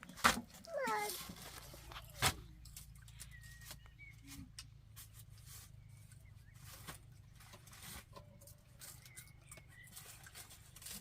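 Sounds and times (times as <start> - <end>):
faint high chirp: 2.6 - 4.5.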